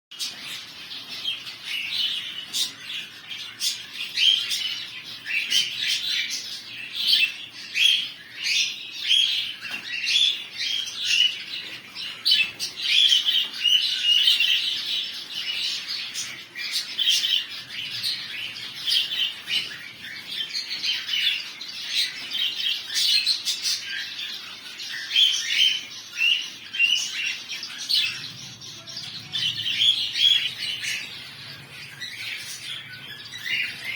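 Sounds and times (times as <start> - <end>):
budgerigars chirping: 0.1 - 33.9.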